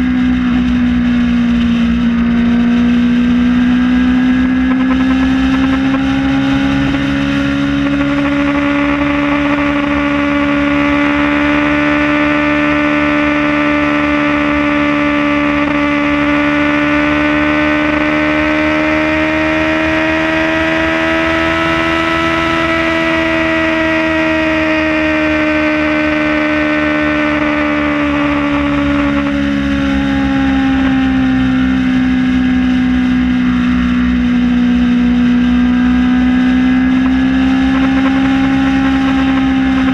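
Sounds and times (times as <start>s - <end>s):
wind rush: 0.0s - 11.7s, 33.5s - 39.9s
motorcycle engine cruising: 0.0s - 39.9s.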